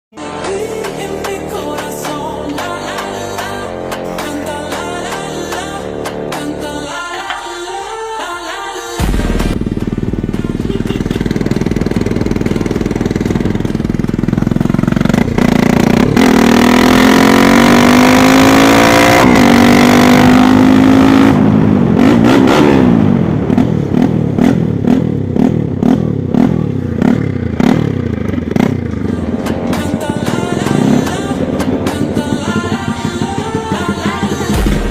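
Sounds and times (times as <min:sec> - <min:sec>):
unsilenced motorcycle engine revving: 0:09.0 - 0:34.9.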